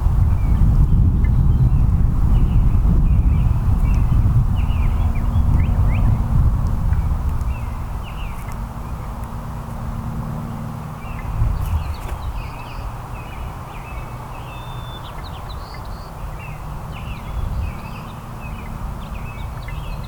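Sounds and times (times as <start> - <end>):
steady low rumble: 0.0 - 14.3
small songbirds chirping: 0.0 - 20.0.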